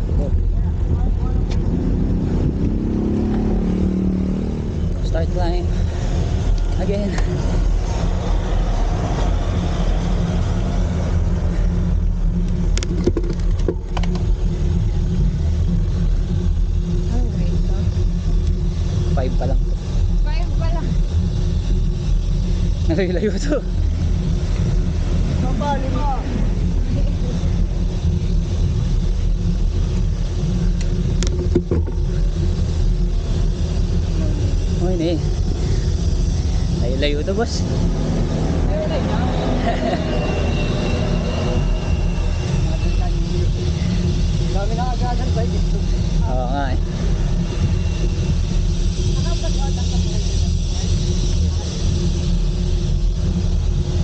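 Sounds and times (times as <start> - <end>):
road rumble: 0.0 - 54.0.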